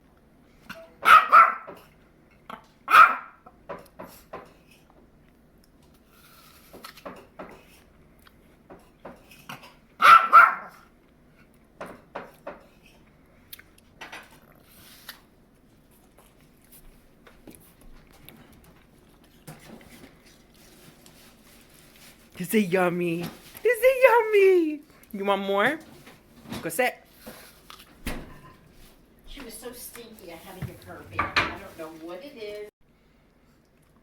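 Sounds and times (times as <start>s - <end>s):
puppy barking: 1.0s - 1.8s, 2.9s - 3.4s, 10.0s - 10.8s.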